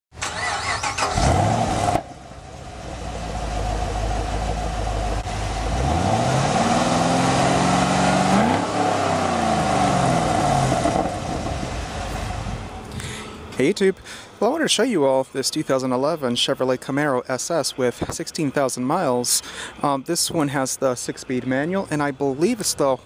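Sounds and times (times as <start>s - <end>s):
car engine revving: 0.2s - 12.9s.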